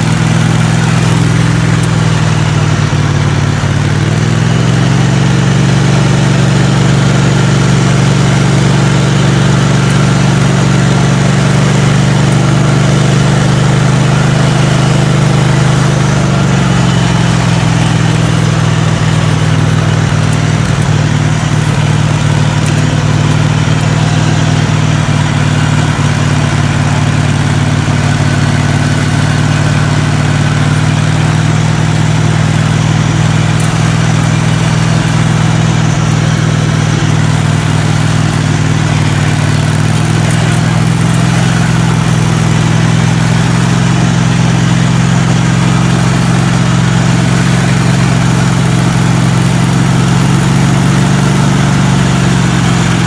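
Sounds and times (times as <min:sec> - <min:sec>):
lawn mower engine running: 0:00.0 - 0:53.0.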